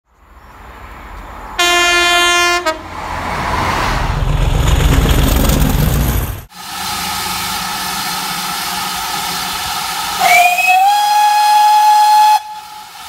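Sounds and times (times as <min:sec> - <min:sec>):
passenger train passing at speed: 0:00.2 - 0:13.0
train horn: 0:01.6 - 0:02.9, 0:10.2 - 0:13.0.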